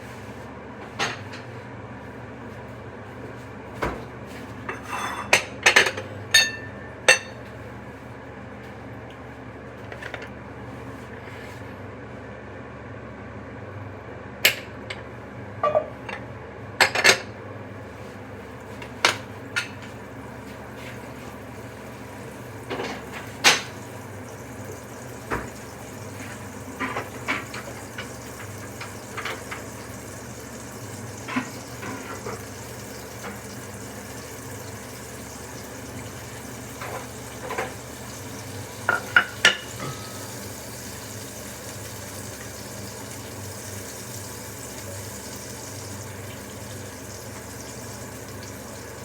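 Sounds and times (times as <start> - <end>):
steady background hum: 0.0 - 49.0
dishes and utensils clinking: 4.7 - 7.4, 15.6 - 15.9, 38.8 - 40.5.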